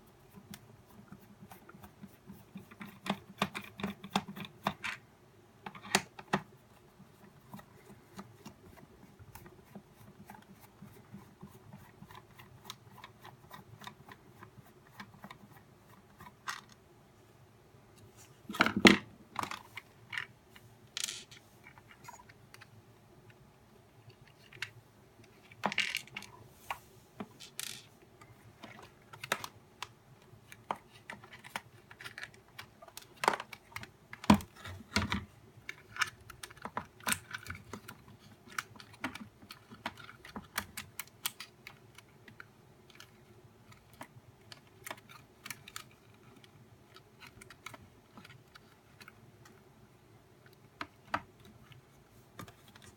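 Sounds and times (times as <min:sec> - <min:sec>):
plastic parts clicking and tapping: 0:00.3 - 0:05.0, 0:05.6 - 0:06.5, 0:18.5 - 0:23.4, 0:24.0 - 0:26.3, 0:27.2 - 0:49.7, 0:50.4 - 0:52.9.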